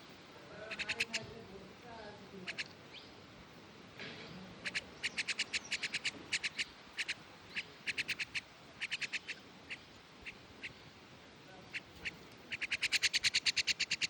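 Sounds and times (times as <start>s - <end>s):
myna bird chirping: 0.5s - 1.4s, 2.3s - 3.3s, 4.2s - 11.0s, 11.6s - 14.0s.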